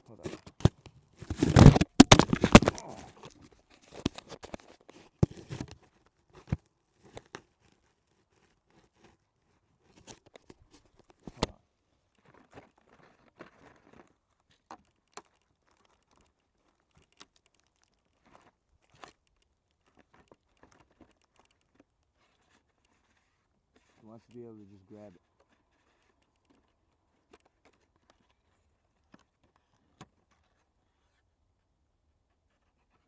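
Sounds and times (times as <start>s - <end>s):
food packaging crinkling: 0.2s - 3.4s, 4.0s - 5.8s
sharp clicks and knocks: 0.3s - 3.1s, 4.0s - 4.6s, 5.2s - 5.8s.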